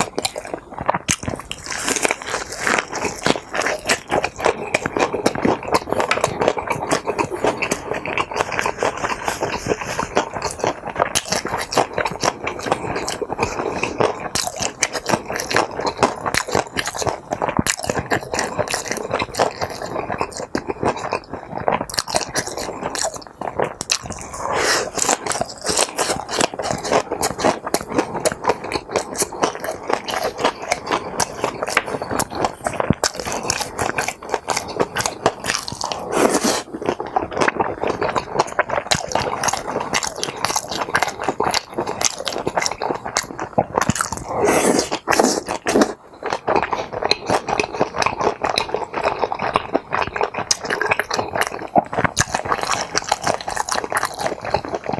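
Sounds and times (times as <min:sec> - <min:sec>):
wet sticky chewing: 0:00.0 - 0:54.9
loud mouth sounds: 0:21.3 - 0:54.9.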